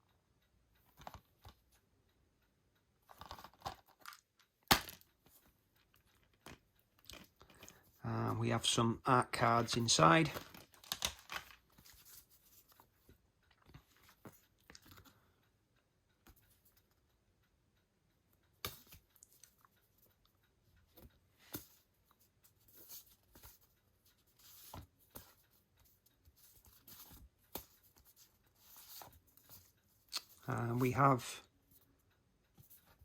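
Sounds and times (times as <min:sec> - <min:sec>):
cardboard cards rustling: 0:09.4 - 0:12.8, 0:22.6 - 0:31.1.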